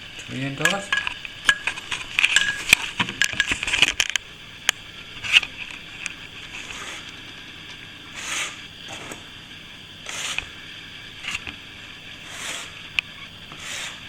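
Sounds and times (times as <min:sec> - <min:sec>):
metal trowel scraping plaster: 0:06.6 - 0:07.1, 0:08.1 - 0:09.2, 0:10.0 - 0:10.5, 0:12.2 - 0:12.8, 0:13.5 - 0:14.0.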